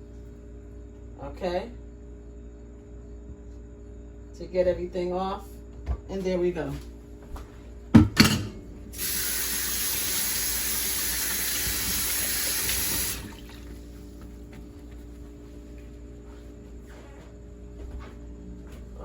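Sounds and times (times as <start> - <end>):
kitchen tap running: 8.9 - 14.0.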